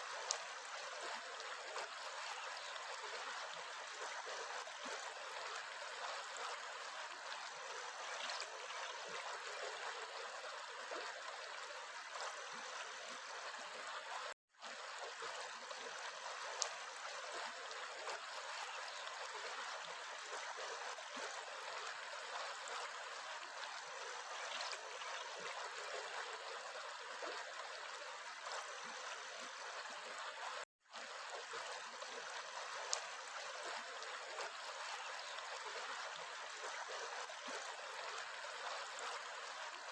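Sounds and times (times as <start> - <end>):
stream water rushing: 0.0 - 8.2.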